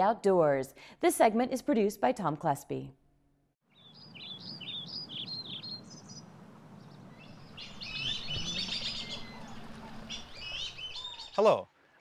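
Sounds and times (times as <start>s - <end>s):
small birds chirping: 3.6s - 11.8s.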